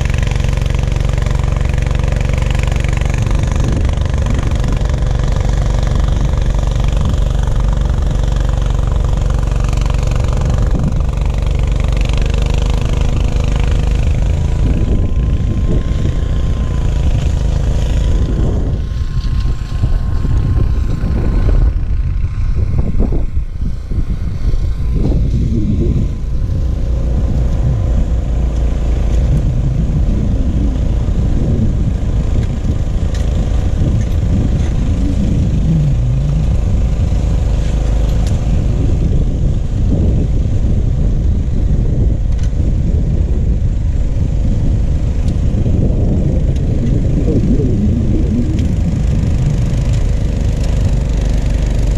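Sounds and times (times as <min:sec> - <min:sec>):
snowblower engine running: 0:00.0 - 0:51.9.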